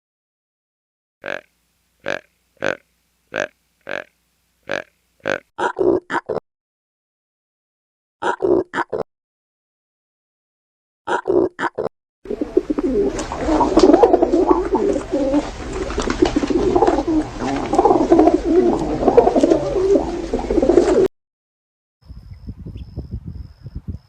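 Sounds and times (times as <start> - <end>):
pigeons cooing: 4.7 - 6.0, 12.3 - 21.1.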